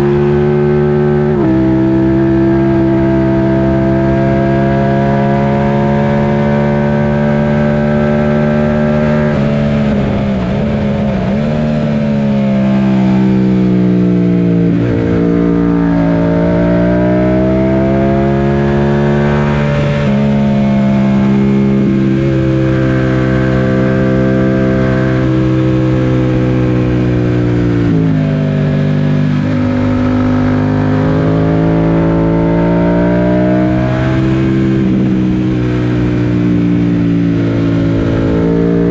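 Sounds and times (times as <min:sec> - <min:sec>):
motorcycle engine accelerating: 0:00.0 - 0:38.9
wind rush: 0:09.3 - 0:18.3, 0:33.8 - 0:38.9.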